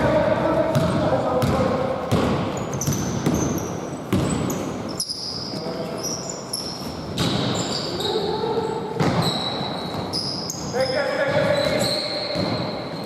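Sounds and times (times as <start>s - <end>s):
murmur of voices: 0.0s - 2.1s
basketball bouncing on floor: 0.0s - 4.6s
sneakers squeaking: 0.0s - 13.0s.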